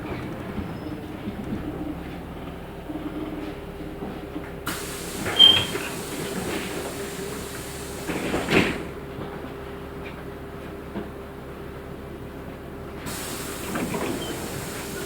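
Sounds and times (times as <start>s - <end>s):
bus engine hum: 0.0s - 9.0s, 13.0s - 15.0s
pneumatic door air hiss: 4.7s - 9.0s, 13.0s - 15.0s
short high squeal: 5.2s - 6.0s.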